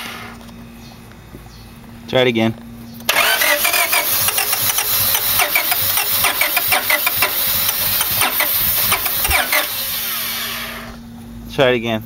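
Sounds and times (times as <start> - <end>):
engine firing unevenly in pops: 3.0 - 9.7
car starter cranking: 3.1 - 10.8.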